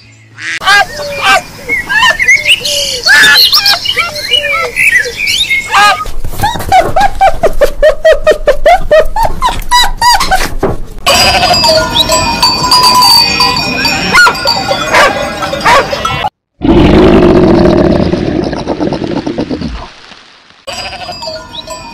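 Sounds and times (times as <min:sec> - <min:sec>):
sheep bleating: 0:11.0 - 0:11.8, 0:20.7 - 0:21.4
dog yipping: 0:14.1 - 0:16.0.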